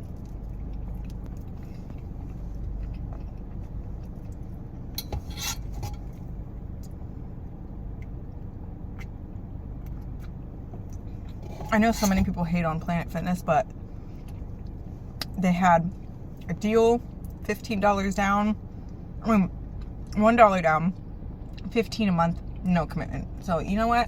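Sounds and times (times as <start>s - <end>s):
person chewing a cookie: 0.0s - 5.0s, 8.0s - 11.5s
steady low rumble: 0.0s - 24.0s.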